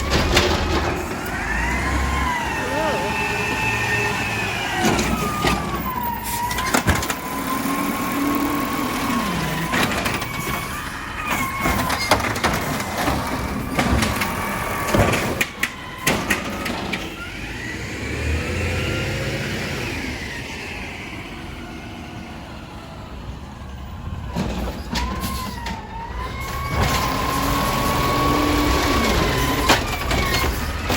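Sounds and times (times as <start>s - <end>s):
sharp bangs and clanks: 0.0s - 2.4s, 3.6s - 17.4s
garbage truck high whine: 0.0s - 30.9s
truck engine: 0.0s - 30.9s.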